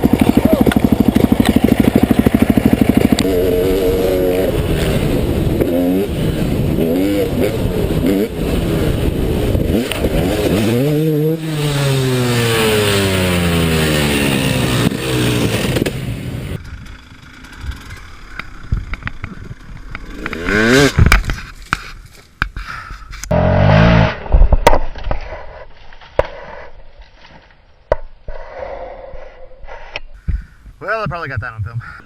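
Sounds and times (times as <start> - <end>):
dirt bike engine revving: 0.0 - 18.9, 19.9 - 21.1, 23.3 - 24.3.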